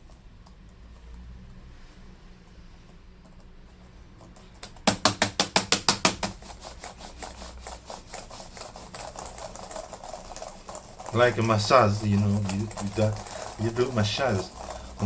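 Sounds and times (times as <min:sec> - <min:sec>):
laptop keys clicking rapidly: 0:03.2 - 0:15.0.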